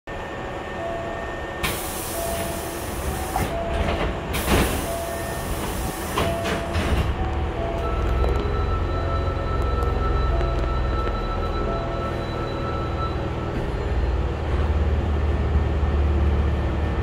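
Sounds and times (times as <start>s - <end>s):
short repeated beeping tones: 4.8s - 13.5s.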